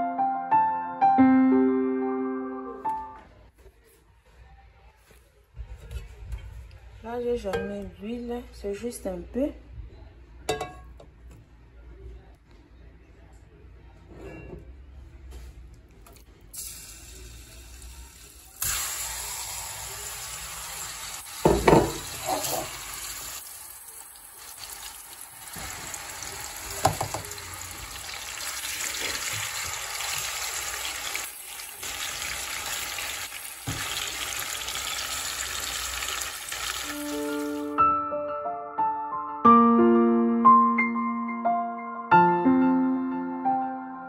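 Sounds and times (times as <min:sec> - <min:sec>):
chicken sizzling in oil: 0:16.6 - 0:37.7.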